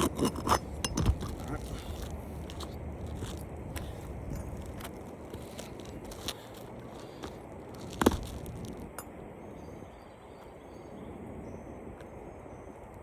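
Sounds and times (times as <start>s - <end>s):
shingle clicking and cracking: 0.0s - 3.5s
faint steady background noise: 0.0s - 13.0s.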